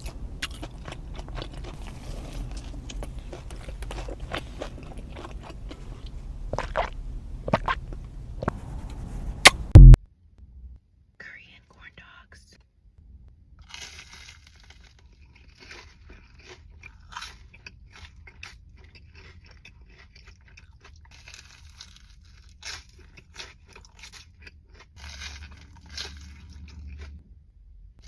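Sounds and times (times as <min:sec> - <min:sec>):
person chewing crispy food: 0:00.0 - 0:08.0, 0:13.6 - 0:27.2.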